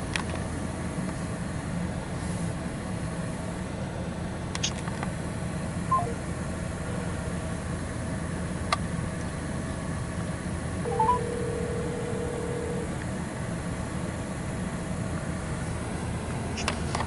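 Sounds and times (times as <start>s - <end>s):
car wash machinery hum: 0.0s - 17.0s
short electronic beep: 5.9s - 6.2s, 10.9s - 11.8s.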